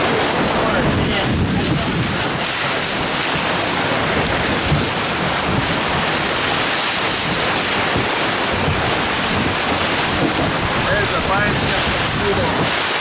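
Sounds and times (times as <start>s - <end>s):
water rushing along a hull: 0.0s - 13.0s
wind buffeting the microphone: 0.0s - 13.0s.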